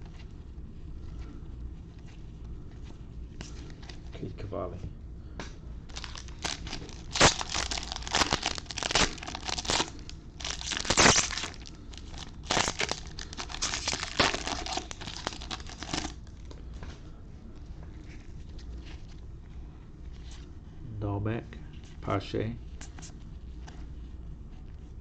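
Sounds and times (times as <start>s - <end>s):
wrapper crinkling and tearing: 5.9s - 16.3s.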